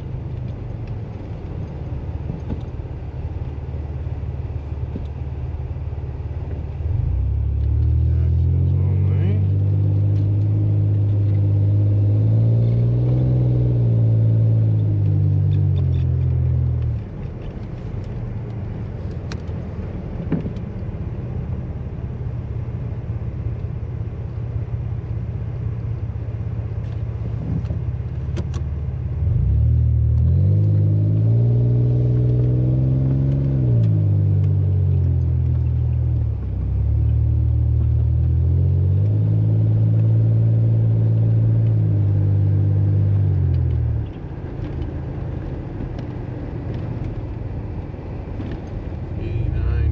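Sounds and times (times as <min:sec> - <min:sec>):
vehicle engine revving: 0:06.8 - 0:17.1, 0:29.2 - 0:49.9
low rumble: 0:43.2 - 0:49.9.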